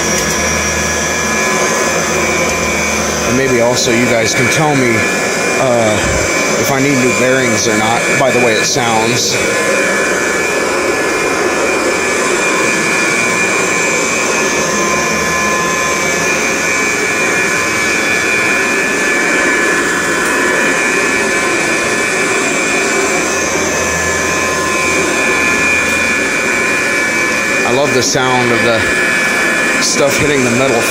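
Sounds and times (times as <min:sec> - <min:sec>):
vacuum cleaner running: 0:00.0 - 0:30.9.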